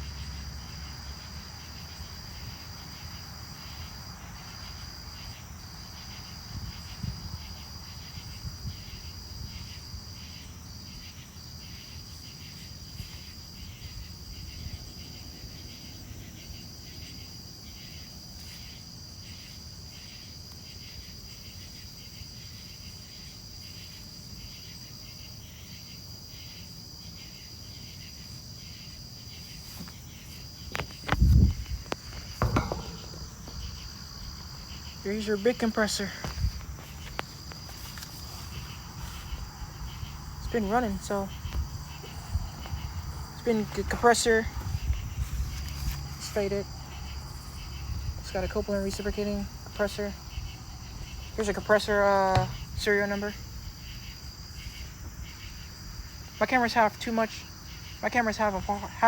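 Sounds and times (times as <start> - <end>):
crickets chirping: 0.0 - 59.0
loud bumps: 29.7 - 38.0.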